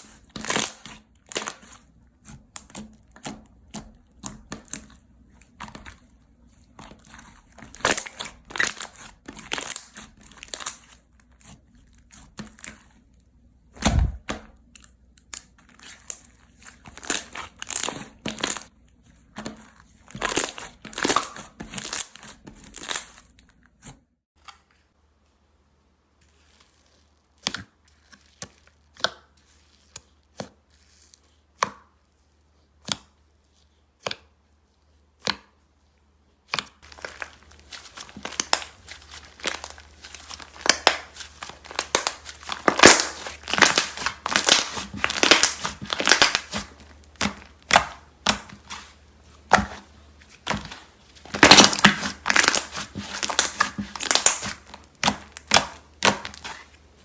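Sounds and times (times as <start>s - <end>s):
slime popping and crackling: 0.0s - 13.0s, 13.8s - 18.7s, 19.4s - 23.4s, 36.8s - 56.7s.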